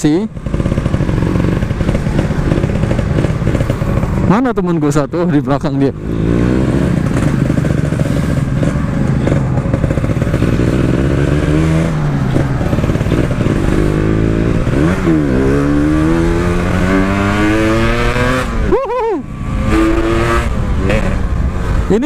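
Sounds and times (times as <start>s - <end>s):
two-stroke motorcycle engine revving: 0.0s - 22.0s.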